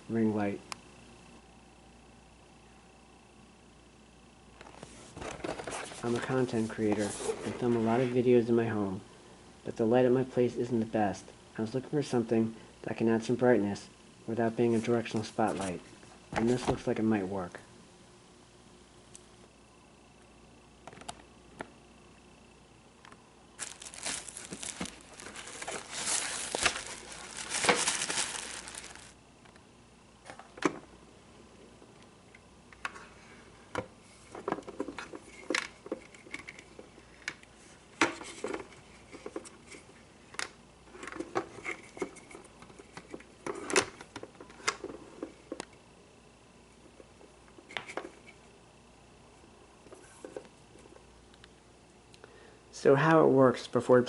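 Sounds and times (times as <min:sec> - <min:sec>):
packaging crinkling and tearing: 0:23.6 - 0:29.2.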